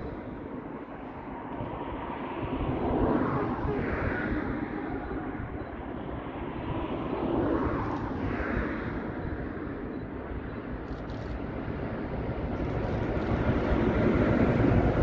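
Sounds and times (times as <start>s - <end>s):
train wheels rumbling on rails: 6.7s - 15.0s.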